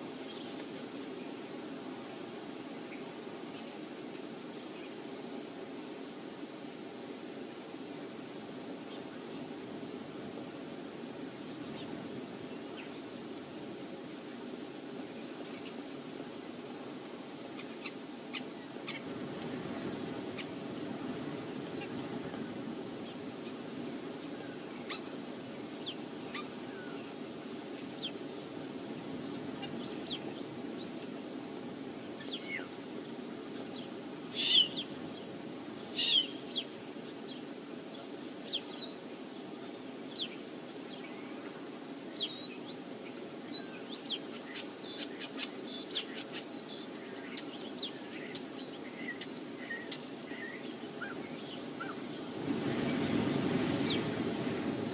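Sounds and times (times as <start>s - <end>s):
wind on microphone: 0.0s - 40.6s, 46.5s - 54.9s
birds chirping: 17.6s - 31.4s, 32.0s - 54.9s.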